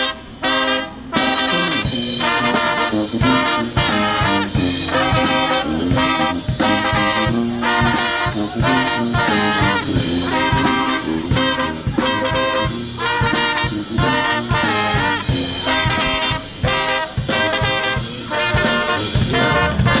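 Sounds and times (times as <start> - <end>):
swing music with brass: 0.0 - 20.0.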